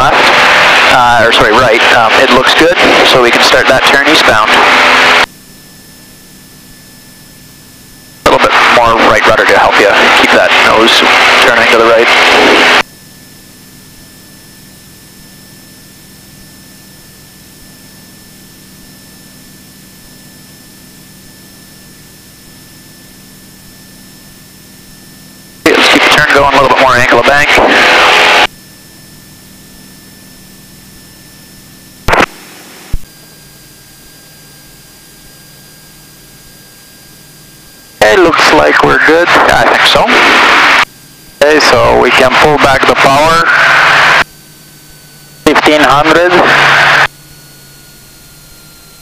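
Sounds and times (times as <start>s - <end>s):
burst of static: 0.0s - 5.3s, 8.2s - 12.8s, 25.6s - 28.5s, 32.0s - 33.1s, 38.0s - 44.2s, 45.4s - 47.1s
small plane engine drone: 0.0s - 49.0s
person speaking: 25.7s - 28.0s, 38.0s - 40.3s, 41.4s - 43.6s, 45.5s - 46.7s.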